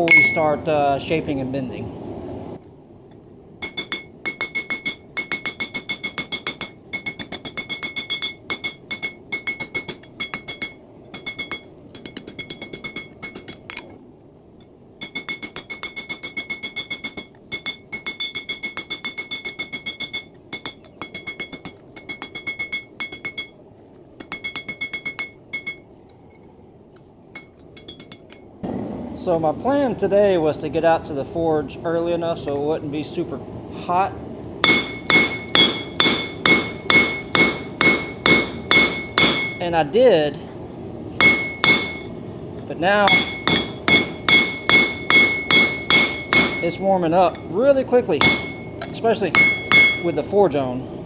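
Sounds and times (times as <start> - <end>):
anvil ringing: 0.0 - 0.7, 3.6 - 13.8, 15.0 - 23.6, 24.2 - 25.9, 27.4 - 28.5, 34.6 - 39.8, 41.2 - 42.2, 43.0 - 47.6, 48.2 - 50.4
hammer striking steel on anvil: 0.0 - 0.7, 3.6 - 13.8, 15.0 - 23.6, 24.2 - 25.9, 27.4 - 28.4, 34.6 - 39.8, 41.2 - 42.2, 43.0 - 47.6, 48.2 - 50.3
gas forge roaring: 27.4 - 51.0.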